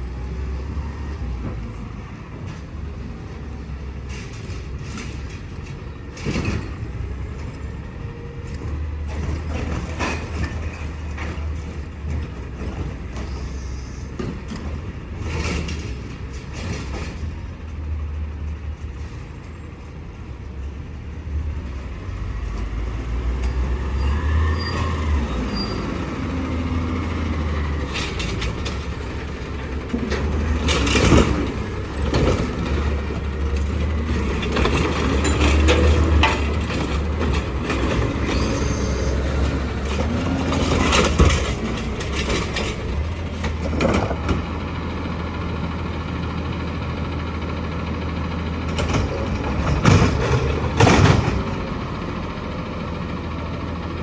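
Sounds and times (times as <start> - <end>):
garbage truck diesel engine: 0.0 - 54.0.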